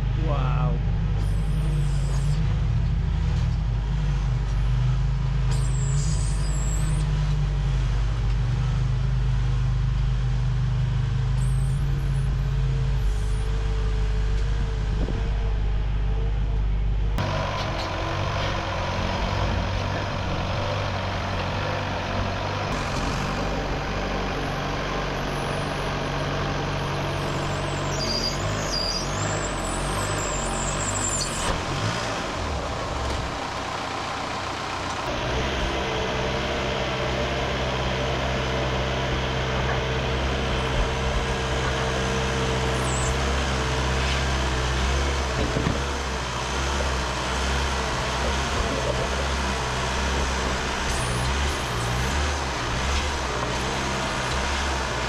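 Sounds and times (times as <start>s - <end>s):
engine running at low speed: 0.0s - 55.0s
steady whine: 9.7s - 28.0s.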